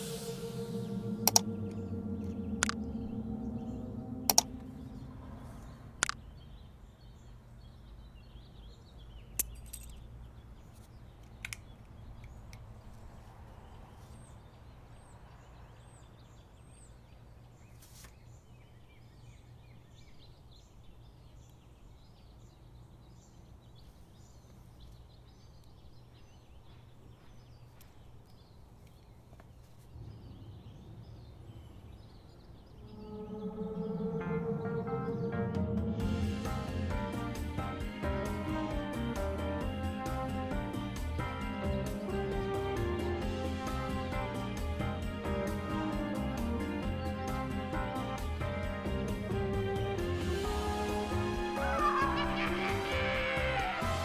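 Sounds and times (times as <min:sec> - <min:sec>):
steady low hum: 0:00.0 - 0:07.2, 0:29.9 - 0:41.2
faint high bird chirps: 0:00.0 - 0:12.5, 0:13.8 - 0:36.0
sharp clicks: 0:01.3 - 0:01.5, 0:04.3 - 0:04.5, 0:06.0 - 0:06.2.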